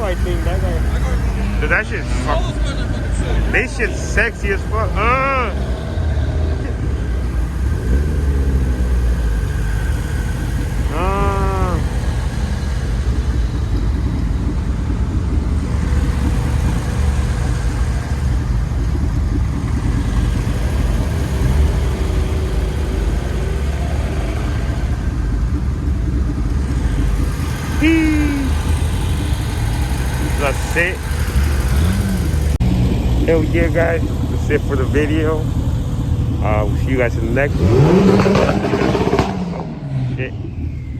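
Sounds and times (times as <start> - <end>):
car engine rumbling: 0.0 - 40.9
person shouting: 2.0 - 5.6, 10.9 - 11.9, 27.8 - 28.6.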